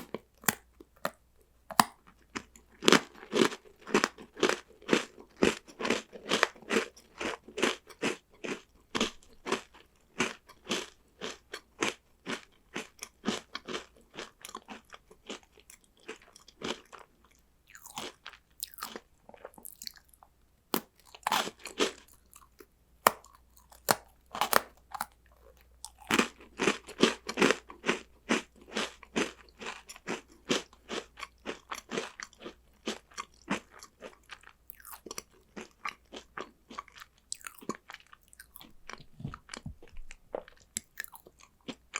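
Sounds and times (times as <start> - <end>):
crunching crunchy snacks: 0.0 - 41.9.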